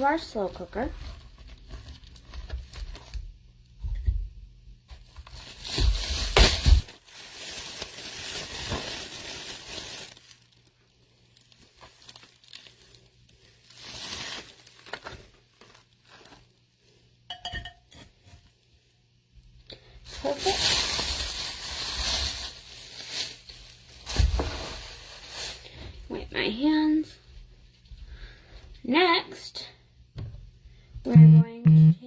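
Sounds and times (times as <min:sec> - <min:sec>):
plastic packaging crinkling: 0:00.0 - 0:03.3, 0:04.9 - 0:16.8, 0:20.0 - 0:25.9.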